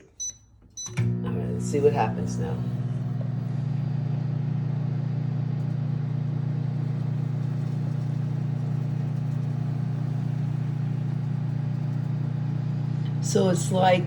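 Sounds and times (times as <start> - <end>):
microwave oven humming: 0.1 - 14.0.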